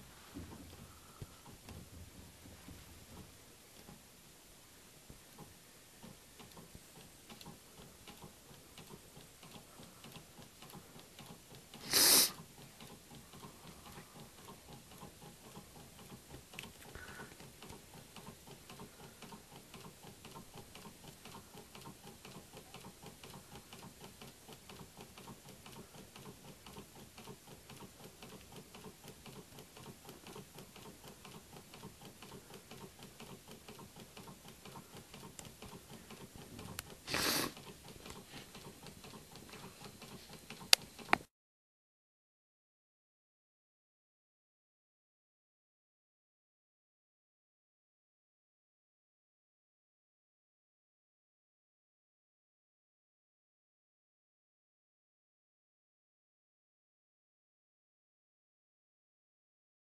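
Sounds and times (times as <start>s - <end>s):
small engine ticking rapidly: 6.4s - 41.2s.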